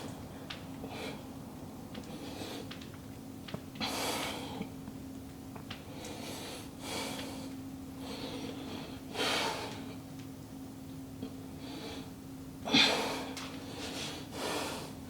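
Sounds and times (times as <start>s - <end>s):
steady low hum: 0.0s - 15.0s
man breathing hard: 11.6s - 15.0s.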